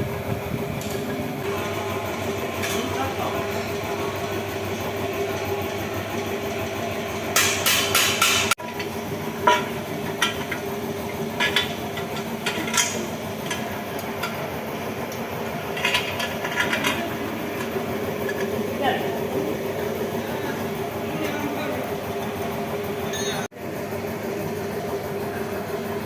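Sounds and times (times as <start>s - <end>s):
steady hum: 0.0s - 26.0s
hand tools knocking on metal: 7.4s - 10.7s, 11.3s - 14.4s.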